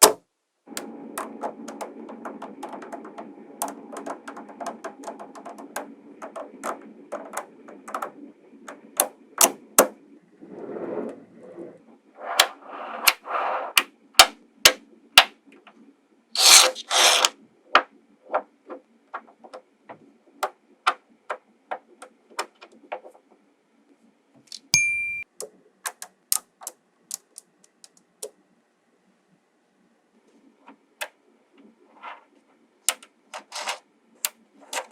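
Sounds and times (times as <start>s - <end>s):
magnetic balls clicking: 0.0s - 9.9s, 24.5s - 28.4s, 32.9s - 34.9s
ringing ding: 24.7s - 25.2s.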